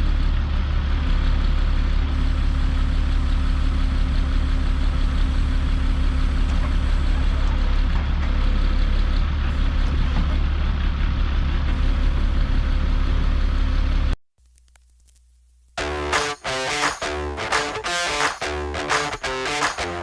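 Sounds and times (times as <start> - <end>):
truck diesel engine running: 0.0 - 14.2, 15.8 - 20.0.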